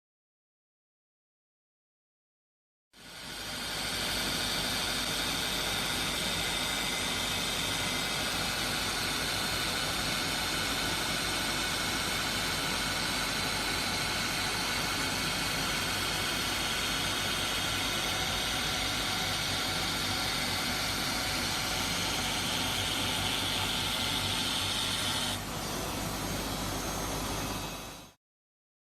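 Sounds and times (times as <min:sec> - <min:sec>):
polishing machine grinding: 0:03.2 - 0:28.2.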